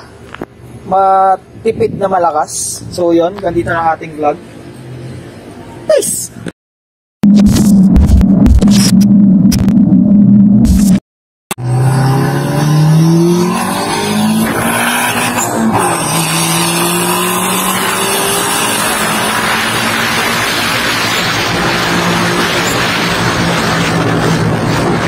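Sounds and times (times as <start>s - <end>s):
wind and road noise: 0.0s - 6.5s, 11.6s - 25.0s
car engine accelerating: 11.5s - 25.0s.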